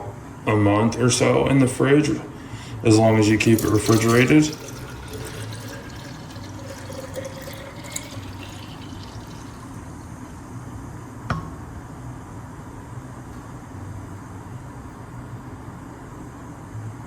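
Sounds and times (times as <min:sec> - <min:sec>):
liquid pouring into a bottle: 0:02.9 - 0:10.1.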